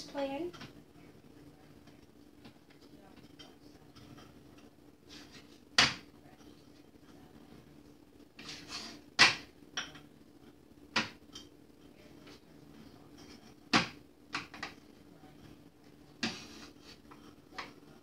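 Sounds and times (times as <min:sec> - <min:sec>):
scraping in a dish: 0:08.4 - 0:09.1, 0:16.2 - 0:17.7.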